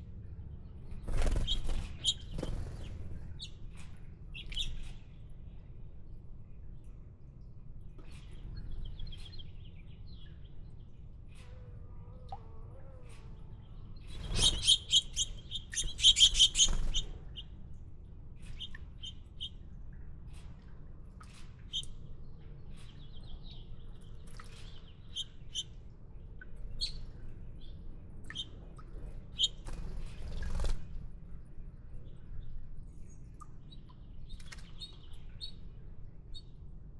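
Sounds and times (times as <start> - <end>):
small birds chirping: 0.6 - 5.7, 13.0 - 17.6, 18.4 - 20.4, 21.6 - 30.9, 31.6 - 36.6.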